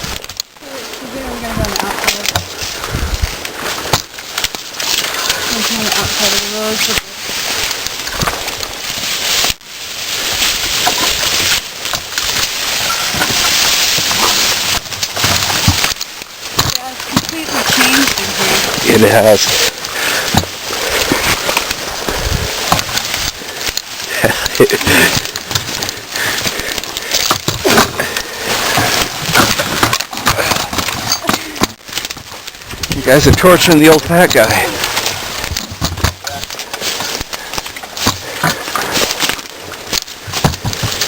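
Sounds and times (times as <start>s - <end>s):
small crackles and clicks: 0.1s - 9.6s, 10.4s - 41.0s
wind on microphone: 0.9s - 4.3s, 19.5s - 23.7s.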